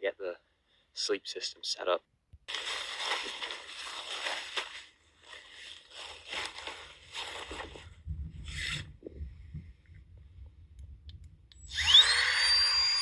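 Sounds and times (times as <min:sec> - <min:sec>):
nylon camping gear rustling: 0:02.5 - 0:09.0
low rumble: 0:07.6 - 0:11.6.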